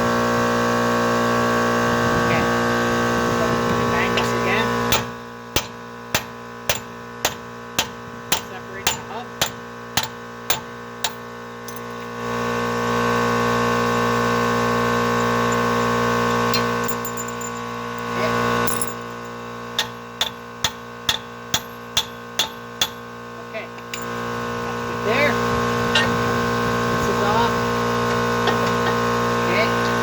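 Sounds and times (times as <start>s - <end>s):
constant background hum: 0.0s - 30.0s
hammer striking metal: 4.9s - 11.2s, 19.8s - 23.1s.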